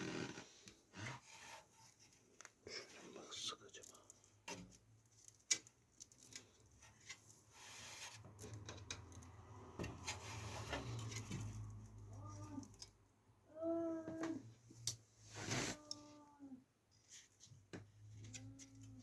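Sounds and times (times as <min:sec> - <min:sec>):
parts being handled: 0:03.7 - 0:12.9.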